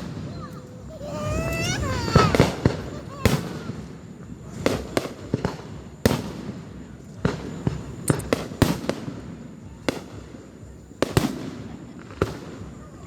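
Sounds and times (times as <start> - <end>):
fireworks bangs: 0.0 - 13.0
fireworks popping: 0.0 - 13.0.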